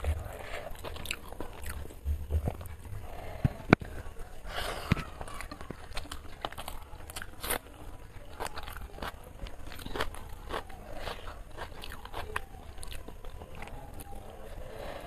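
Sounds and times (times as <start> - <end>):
raw onion crunching: 0.0 - 14.9.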